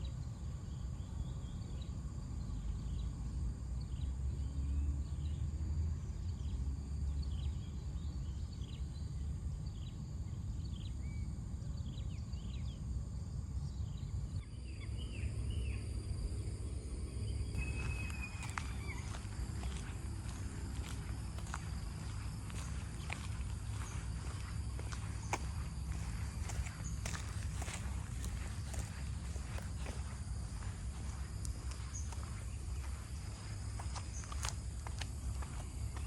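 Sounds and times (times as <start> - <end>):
steady low rumble: 6.0 - 36.0
birds chirping: 17.5 - 36.0.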